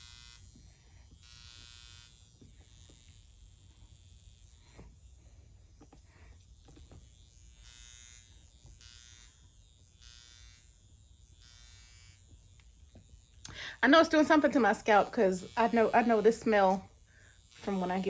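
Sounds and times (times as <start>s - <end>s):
electric facial wand buzzing: 0.0s - 18.0s.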